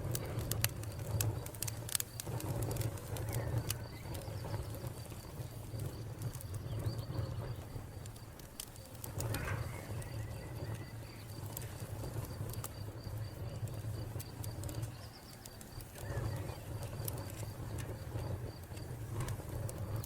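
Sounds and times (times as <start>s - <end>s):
wood fire crackling: 0.0s - 20.0s
cricket chirping: 9.1s - 20.0s.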